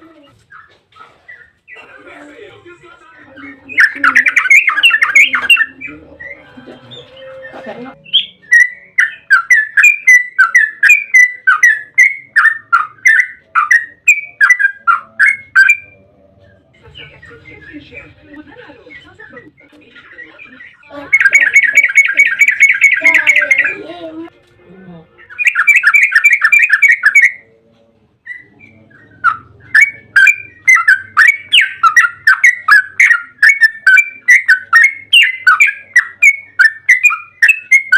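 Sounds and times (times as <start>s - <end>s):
bird singing whistled notes: 3.5s - 6.4s, 7.0s - 16.0s, 25.3s - 27.5s, 28.3s - 37.9s.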